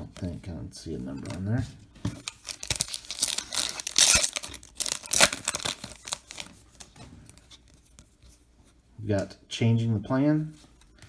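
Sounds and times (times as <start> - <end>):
wrapper tearing and crinkling: 2.2 - 7.7.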